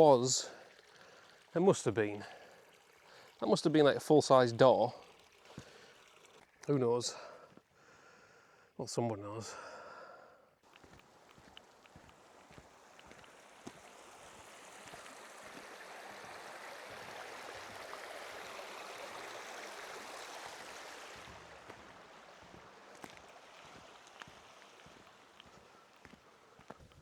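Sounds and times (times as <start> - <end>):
stream running water: 0.0 - 27.0
faint footsteps: 10.6 - 17.2, 21.2 - 27.0.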